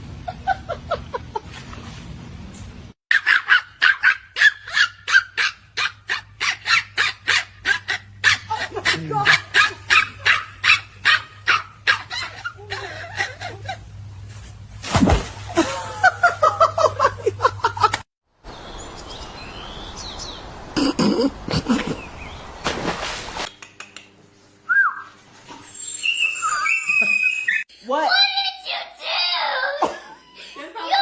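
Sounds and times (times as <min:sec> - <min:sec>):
dog barking: 0:03.1 - 0:12.2.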